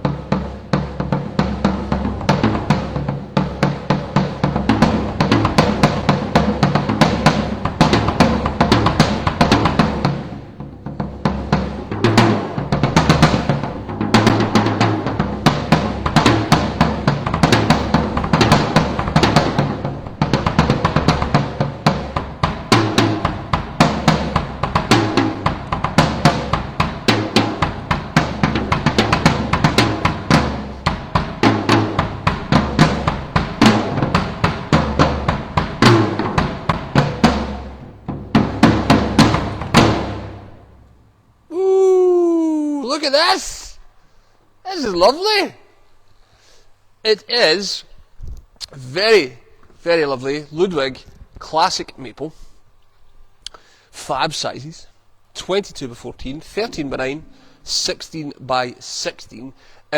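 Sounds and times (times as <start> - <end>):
drum kit playing a groove: 0.0 - 40.7.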